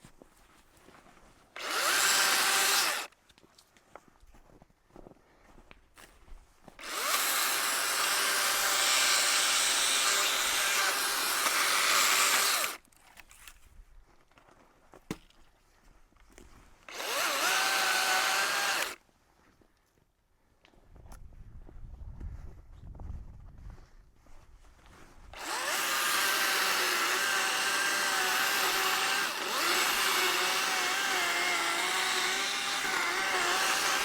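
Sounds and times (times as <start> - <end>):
chainsaw cutting wood: 1.6 - 3.1, 6.8 - 12.8, 16.9 - 19.0, 25.4 - 34.0.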